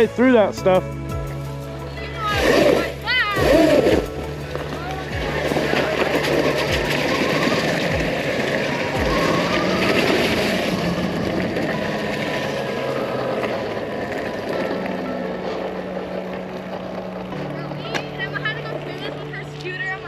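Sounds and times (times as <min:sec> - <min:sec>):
bike tyres rolling on rough ground: 0:00.0 - 0:20.0.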